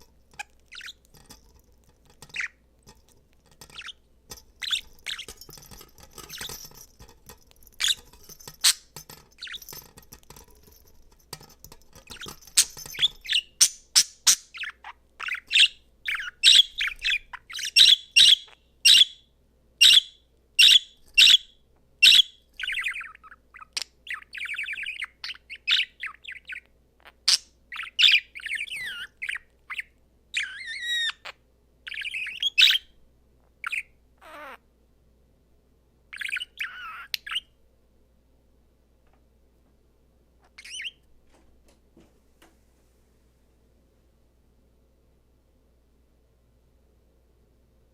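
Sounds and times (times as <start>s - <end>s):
budgerigar chirping and warbling: 33.6s - 34.6s, 36.2s - 37.5s, 40.5s - 41.0s.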